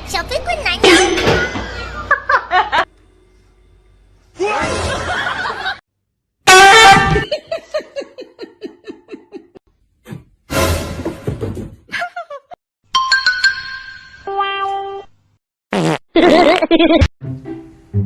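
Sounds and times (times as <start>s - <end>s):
loud pitched cry or honk: 6.4s - 7.3s
person laughing: 7.1s - 9.6s, 11.9s - 12.6s, 16.2s - 17.1s.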